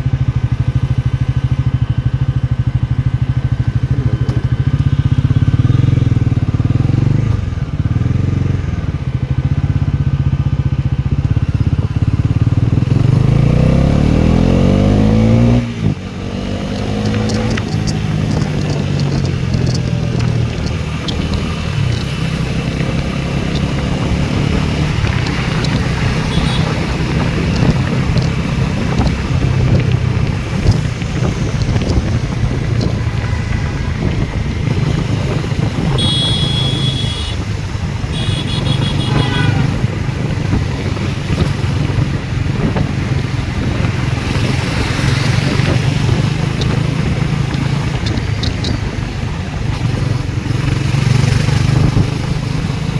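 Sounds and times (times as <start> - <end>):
motorcycle engine running: 0.0 - 52.9
wind noise on microphone: 11.2 - 52.9.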